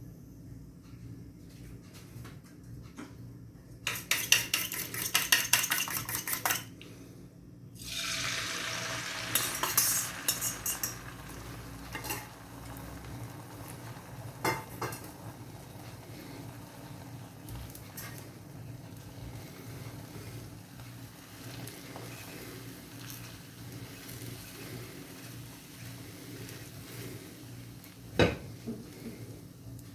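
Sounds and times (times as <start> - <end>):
utensil clinking against cookware: 3.8 - 6.7, 9.2 - 12.4
metal utensil clicking against bowl: 3.9 - 6.7
food sizzling in hot oil: 7.8 - 28.2.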